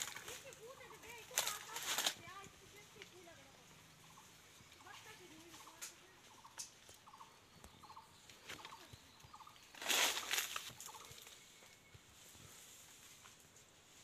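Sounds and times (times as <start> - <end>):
birds clucking: 2.8 - 11.4.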